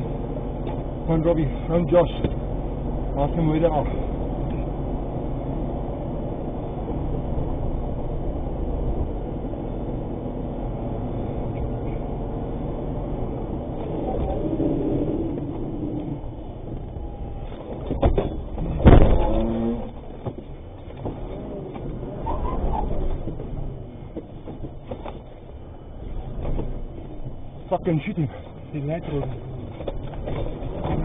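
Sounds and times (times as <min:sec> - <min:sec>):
vehicle engine and road rumble: 0:00.0 - 0:31.0.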